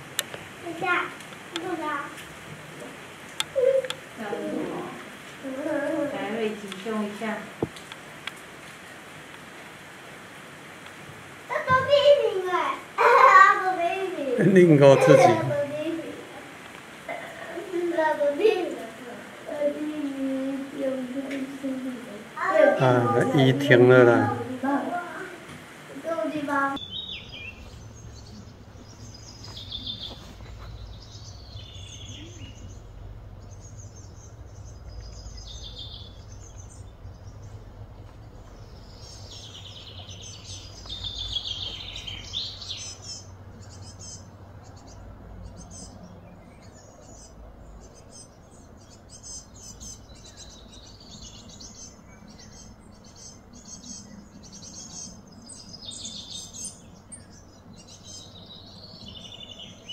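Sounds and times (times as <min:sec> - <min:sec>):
birds chirping and calling: 0:03.3 - 0:07.6, 0:11.5 - 0:59.9
low steady rumble: 0:26.6 - 0:54.5.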